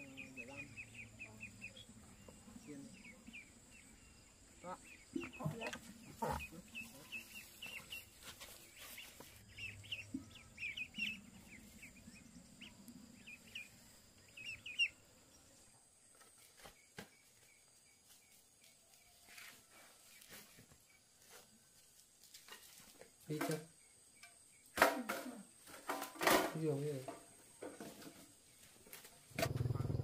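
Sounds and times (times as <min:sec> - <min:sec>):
birds chirping: 0:00.0 - 0:15.8.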